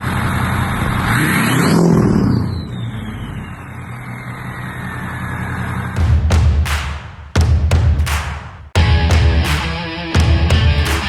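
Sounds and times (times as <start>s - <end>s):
loud bass-heavy music: 8.8s - 11.0s.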